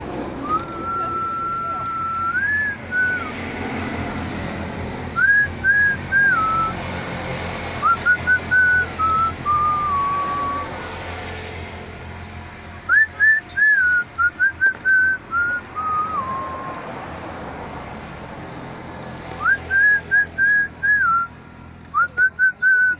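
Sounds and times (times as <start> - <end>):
person whistling a tune: 0.4 - 3.4, 5.2 - 6.8, 7.8 - 10.8, 12.9 - 16.8, 19.4 - 21.3, 21.9 - 22.9.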